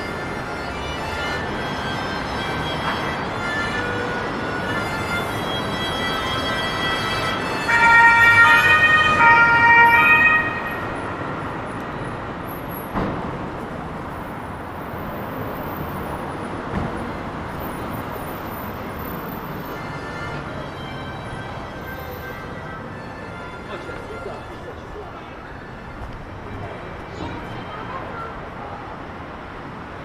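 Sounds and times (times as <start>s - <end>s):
two-tone emergency siren: 0.0s - 12.7s, 19.4s - 26.2s
city traffic noise: 0.0s - 30.0s.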